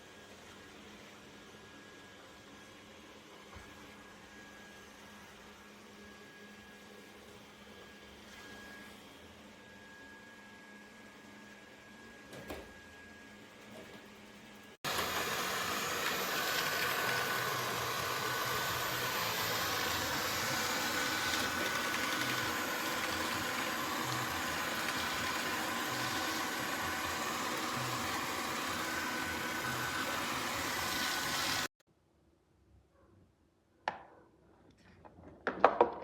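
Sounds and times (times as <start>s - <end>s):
robot vacuum running: 11.8s - 31.7s.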